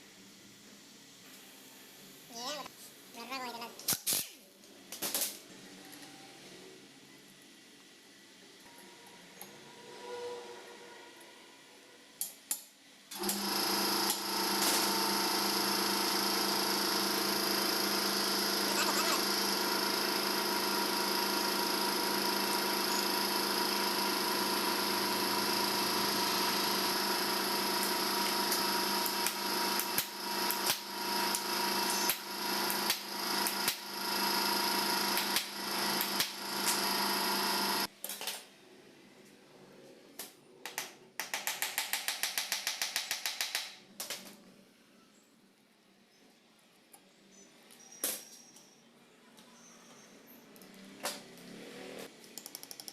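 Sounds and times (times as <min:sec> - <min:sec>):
steady machine hum: 0:13.2 - 0:37.9.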